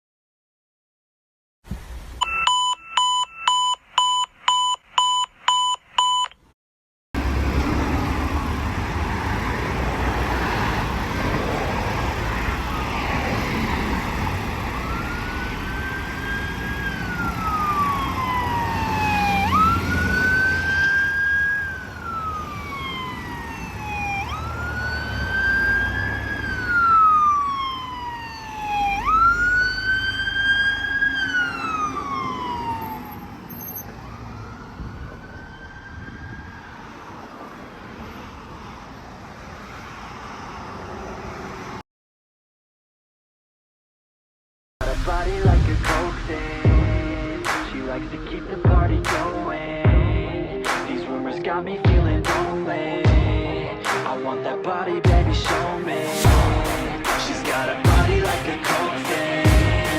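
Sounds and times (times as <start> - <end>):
electronic beeps: 2.2 - 6.4
fire engine rumble: 7.2 - 36.8
siren wailing: 11.9 - 37.4.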